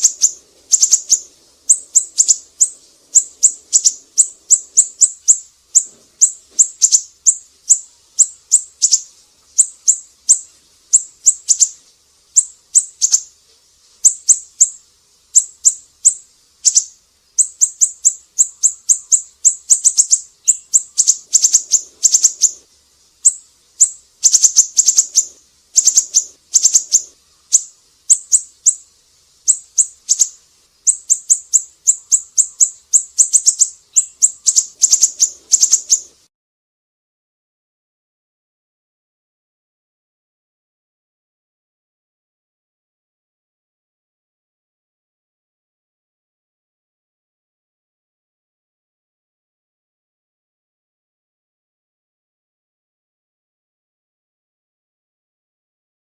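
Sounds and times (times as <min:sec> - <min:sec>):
songbird chirping: 0:00.0 - 0:36.2.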